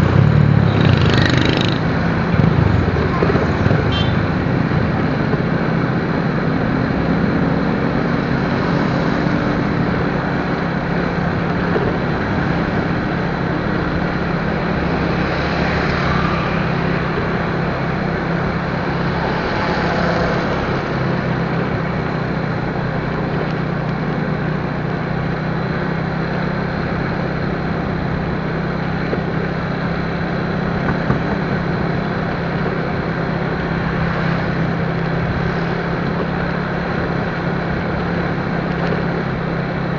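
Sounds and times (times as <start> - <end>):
motorcycle engine cruising: 0.0 - 39.9
road and wind noise: 0.0 - 39.9.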